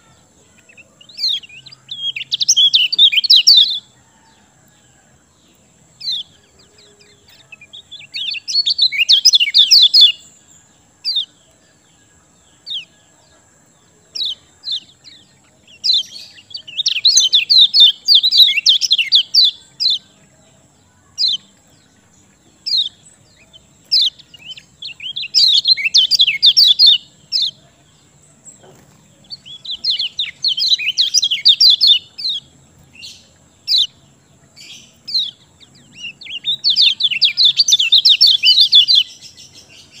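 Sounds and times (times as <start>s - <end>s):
bird high twittering: 0.0s - 3.9s, 6.0s - 10.3s, 14.2s - 20.1s, 22.5s - 27.6s, 28.6s - 40.0s
sharp bird chirps: 0.0s - 4.4s, 5.9s - 13.0s, 14.1s - 40.0s.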